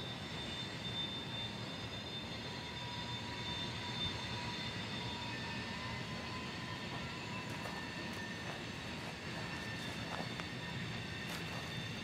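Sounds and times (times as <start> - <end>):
freight train rumbling: 5.3 - 12.0.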